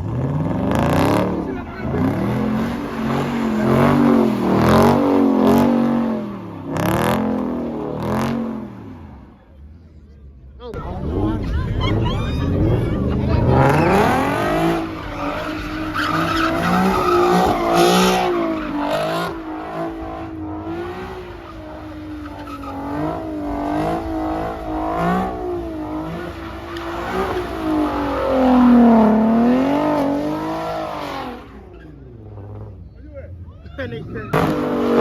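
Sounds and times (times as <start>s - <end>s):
car engine revving: 0.0s - 35.0s
tyres squealing: 0.9s - 6.2s, 10.8s - 32.5s.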